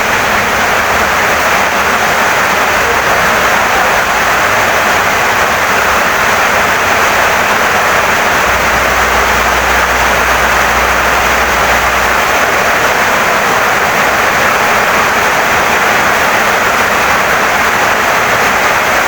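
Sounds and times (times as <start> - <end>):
heavy rain on wooden house: 0.0 - 19.0
low rumble: 2.8 - 13.4.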